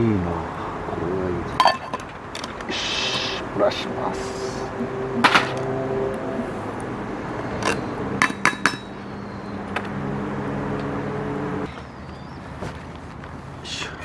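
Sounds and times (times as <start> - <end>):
steady low hum: 0.0 - 11.7
metal cookware clinking: 1.6 - 2.0.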